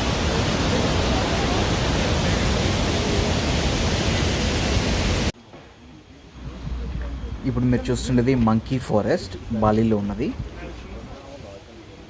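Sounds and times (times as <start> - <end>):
waterfall roar: 0.0 - 5.3.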